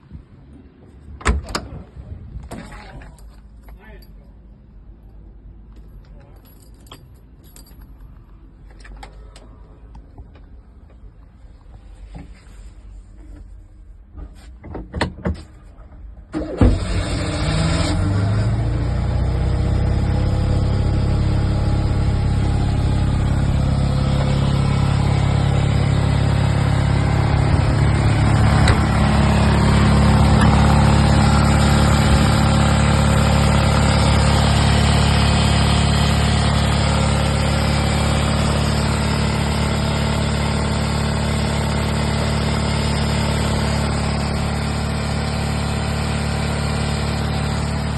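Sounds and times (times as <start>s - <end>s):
car engine cranking and idling: 15.9s - 47.9s.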